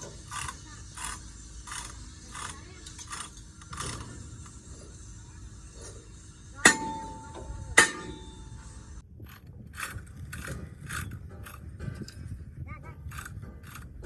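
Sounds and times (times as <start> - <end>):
hand tools rasping on metal: 0.0 - 5.1, 9.2 - 14.0
metal strikes ringing: 6.6 - 8.8.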